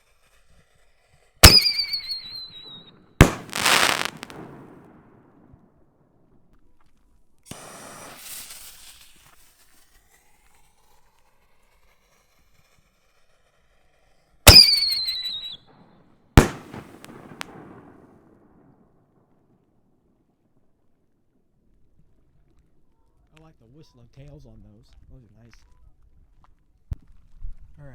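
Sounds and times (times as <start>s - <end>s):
firework whistle: 1.4s - 4.9s, 14.5s - 15.7s, 16.4s - 17.9s
firework shell bangs: 1.4s - 5.0s, 14.5s - 15.6s, 16.4s - 17.9s
firework crackling: 1.4s - 5.2s, 7.5s - 9.8s, 14.5s - 15.6s, 16.4s - 18.2s.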